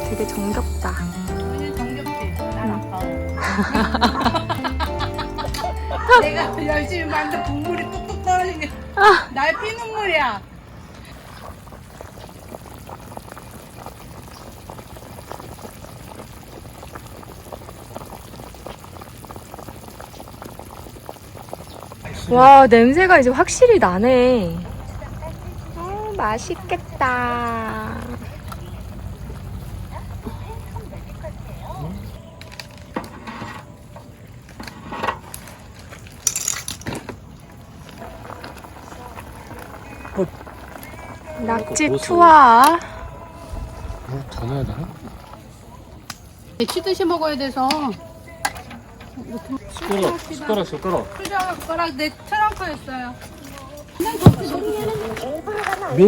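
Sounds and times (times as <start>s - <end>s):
camp cooking gear clattering: 0.0s - 10.2s, 28.0s - 42.8s, 46.0s - 56.0s
broth boiling and bubbling: 8.3s - 53.1s, 53.9s - 56.0s.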